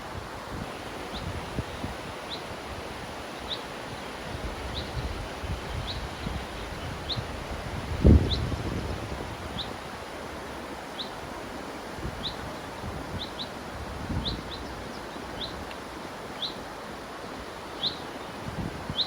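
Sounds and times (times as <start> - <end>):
river rushing: 0.0 - 19.0
wind gusts on microphone: 0.0 - 19.0
bird chirping: 17.7 - 18.3.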